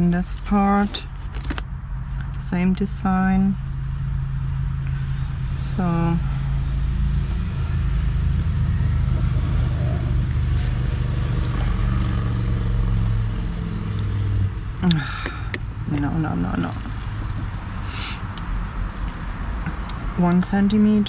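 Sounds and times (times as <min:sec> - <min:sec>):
vehicle engine droning: 0:00.0 - 0:21.0.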